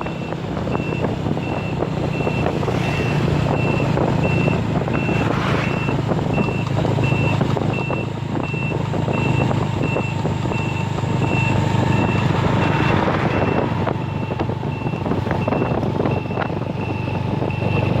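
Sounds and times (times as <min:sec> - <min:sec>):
engine humming: 0:00.0 - 0:18.0
reversing alarm beeping: 0:00.0 - 0:18.0.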